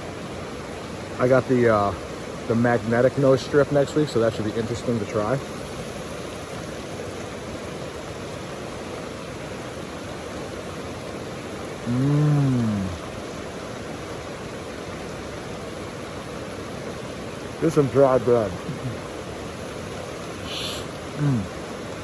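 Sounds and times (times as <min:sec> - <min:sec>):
water rushing from small waterfall: 0:00.0 - 0:22.0
man humming: 0:11.8 - 0:13.1, 0:18.6 - 0:19.0, 0:20.4 - 0:21.6.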